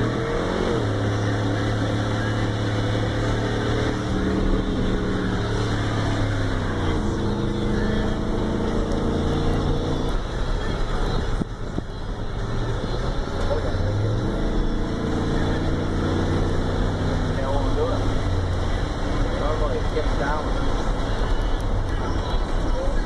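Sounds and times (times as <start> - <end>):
truck engine under load: 0.0 - 11.8.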